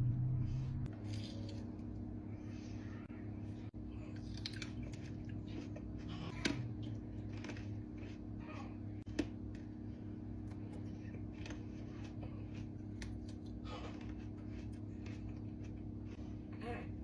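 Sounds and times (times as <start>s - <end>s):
steady low hum: 0.0s - 17.0s
chewing fruit: 4.0s - 16.4s.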